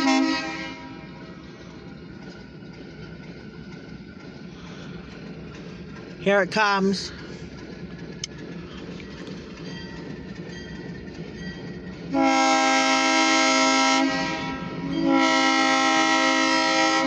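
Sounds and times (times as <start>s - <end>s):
locomotive air horn blasts: 0.0s - 1.2s, 12.1s - 17.0s
diesel locomotive rumble: 0.0s - 17.0s.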